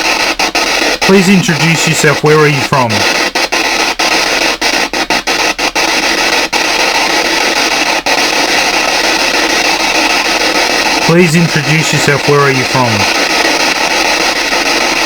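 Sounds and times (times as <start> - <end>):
radio static hiss: 1.0 - 3.2, 11.0 - 13.2.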